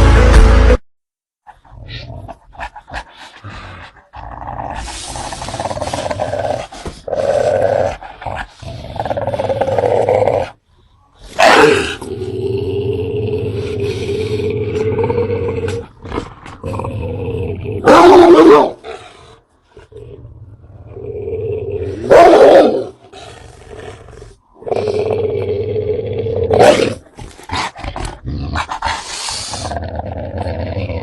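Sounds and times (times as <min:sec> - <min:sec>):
loud music: 0:00.0 - 0:00.8
dog growling fiercely: 0:01.6 - 0:10.6, 0:11.3 - 0:31.0.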